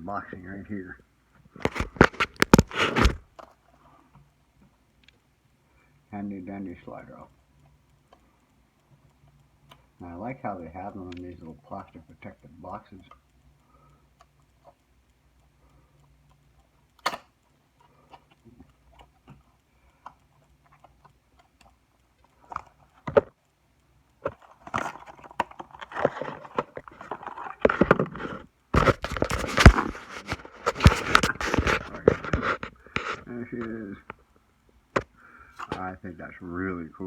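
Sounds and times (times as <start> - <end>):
sharp plastic clicks: 1.4 - 5.3, 10.9 - 34.3
packaging crinkling and rustling: 1.6 - 3.4, 24.2 - 33.3.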